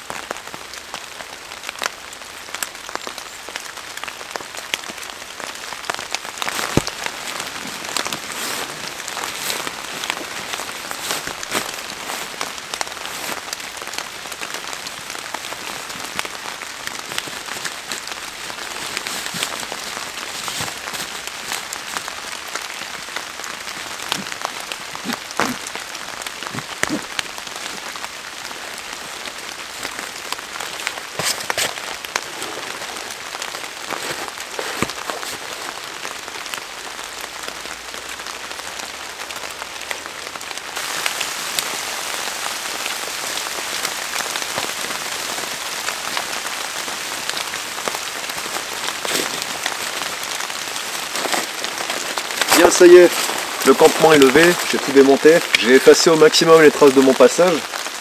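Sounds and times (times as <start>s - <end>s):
rain falling: 0.0s - 58.0s
sharp raindrop hits: 1.7s - 58.0s.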